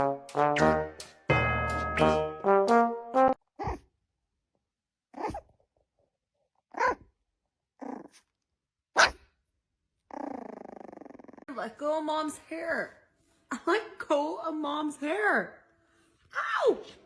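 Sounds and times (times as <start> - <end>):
dog growling: 5.2 - 5.4, 7.8 - 8.2, 10.1 - 11.5
dog barking: 6.8 - 7.0, 9.0 - 9.2.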